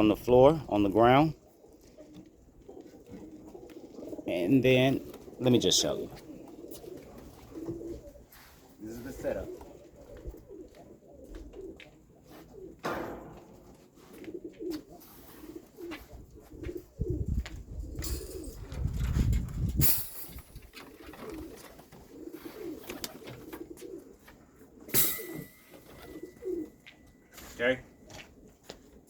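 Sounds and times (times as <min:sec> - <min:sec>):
pigeons cooing: 0:00.0 - 0:29.0.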